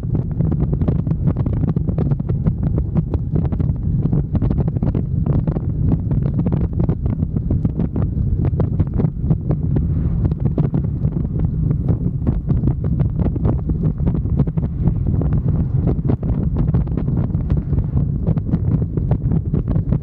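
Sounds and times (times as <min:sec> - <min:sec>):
motorcycle engine rumble: 0:00.0 - 0:20.0
wind buffeting microphone: 0:00.0 - 0:20.0.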